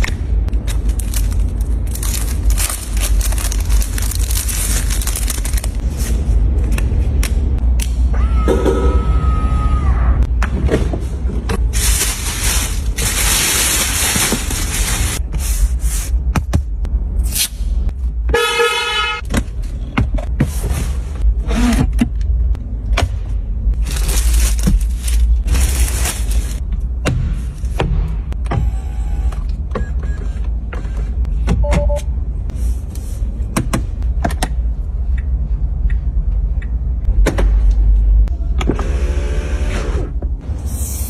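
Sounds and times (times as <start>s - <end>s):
traffic rumble: 0.0s - 40.8s
car horn: 18.3s - 19.2s.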